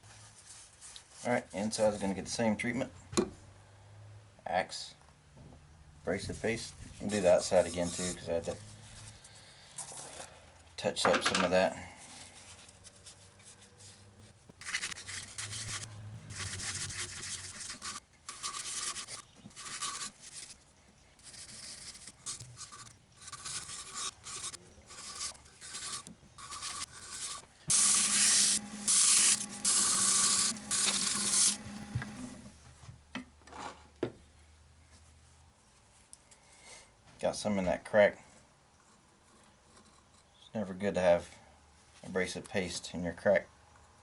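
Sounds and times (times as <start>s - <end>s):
sanding rubbing strokes on wood: 6.4s - 9.2s, 13.0s - 20.5s, 21.3s - 32.4s.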